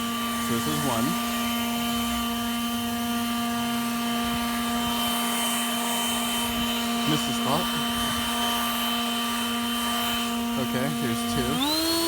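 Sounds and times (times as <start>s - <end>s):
leaf blower motor whine: 0.0s - 12.0s.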